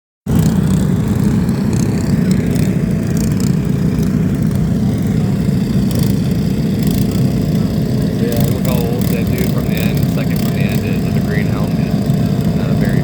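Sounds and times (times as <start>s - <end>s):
loud engine running: 0.3s - 13.0s.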